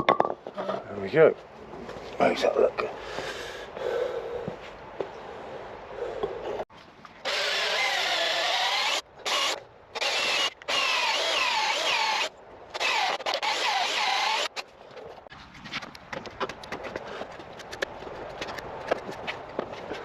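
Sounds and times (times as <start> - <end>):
electric drill running: 7.2 - 14.5.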